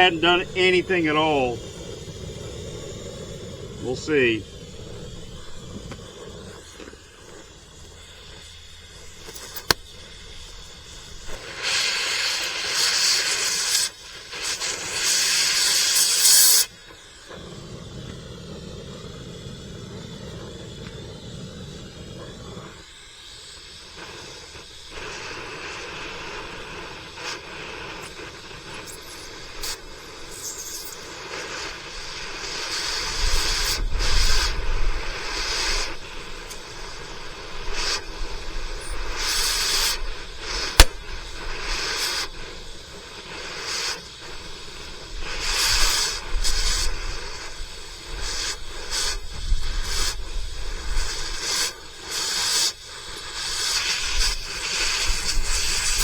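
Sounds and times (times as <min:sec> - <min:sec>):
molten metal crackling and popping: 0:00.0 - 0:19.3, 0:24.1 - 0:56.0
cutting torch hissing: 0:00.0 - 0:56.0
sharp pop: 0:09.2 - 0:10.0, 0:40.7 - 0:41.1.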